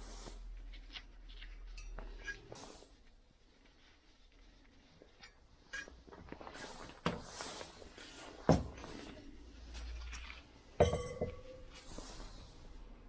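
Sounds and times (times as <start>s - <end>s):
soft scrapes and rustles: 0.0s - 10.8s
metal tools clanking on bench: 10.8s - 11.6s.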